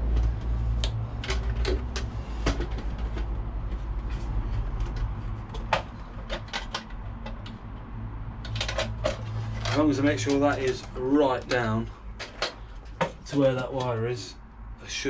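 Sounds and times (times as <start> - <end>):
plastic socket clicks and knocks: 5.5 - 7.6.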